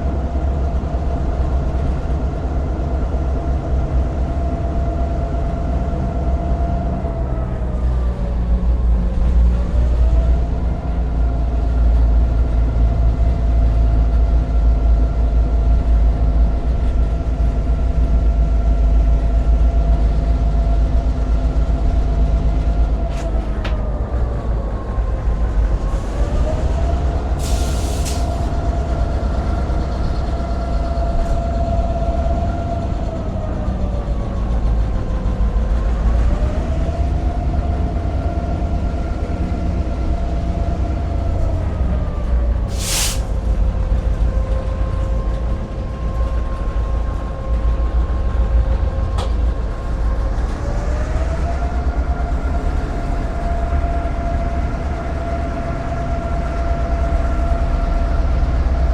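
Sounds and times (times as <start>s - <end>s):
locomotive diesel engine rumbling: 0.0s - 58.9s
brief hiss: 27.4s - 28.5s, 42.7s - 43.4s.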